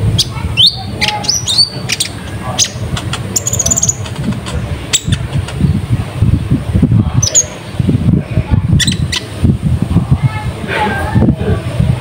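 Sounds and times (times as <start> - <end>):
bird chirping: 0.2 - 5.6.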